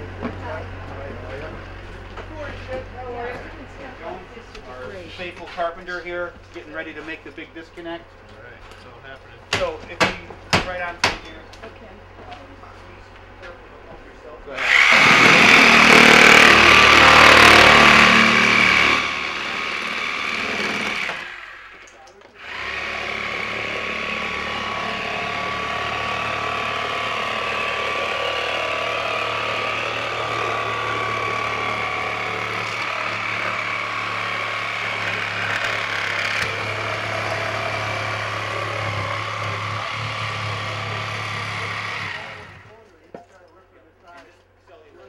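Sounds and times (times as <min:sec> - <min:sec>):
machine running with hum and whine: 0:11.4 - 0:42.8
power tool cutting: 0:14.5 - 0:42.8.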